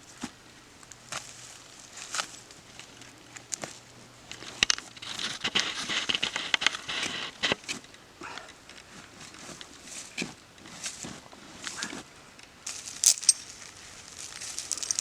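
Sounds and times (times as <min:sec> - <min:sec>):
sharp clicks and knocks: 0:13.0 - 0:13.4, 0:14.4 - 0:15.0.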